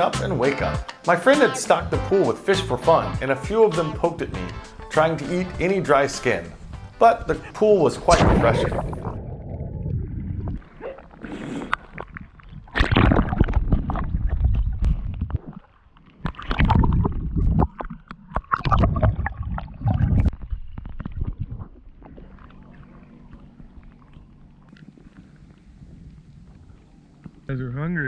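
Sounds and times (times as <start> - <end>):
water gurgling: 0.0 - 27.2
water splashing from swimming: 5.9 - 26.8.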